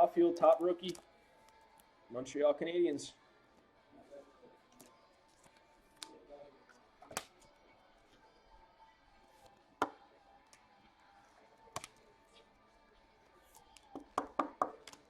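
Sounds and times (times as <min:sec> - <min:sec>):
faint background music: 0:00.0 - 0:15.0
cards clicking on a table: 0:00.5 - 0:01.6, 0:07.0 - 0:07.4, 0:11.7 - 0:12.0, 0:13.5 - 0:15.0.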